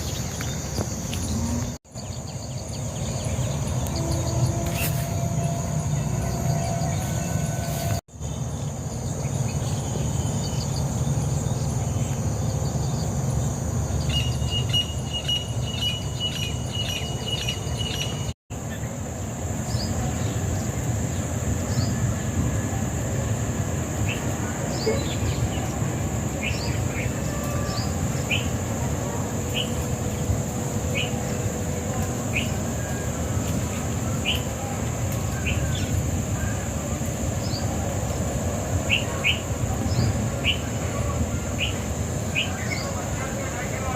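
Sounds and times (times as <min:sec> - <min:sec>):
lower-pitched chirring with ticks: 0:00.0 - 0:08.0
insects trilling: 0:00.0 - 0:43.9
bird chirping: 0:13.9 - 0:18.3.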